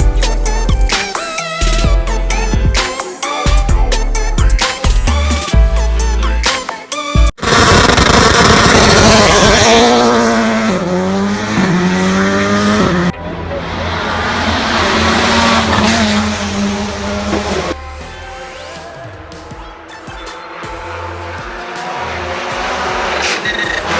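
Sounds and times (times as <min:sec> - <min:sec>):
racing car engine revving: 0:07.4 - 0:23.9.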